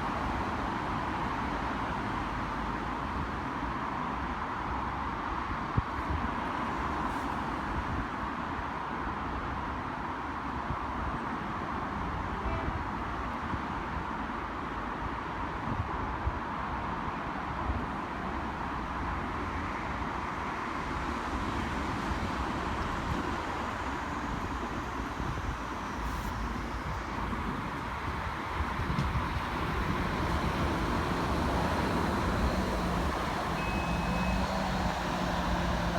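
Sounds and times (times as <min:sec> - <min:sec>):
train running with steady hum: 0:11.8 - 0:15.1, 0:22.1 - 0:35.9.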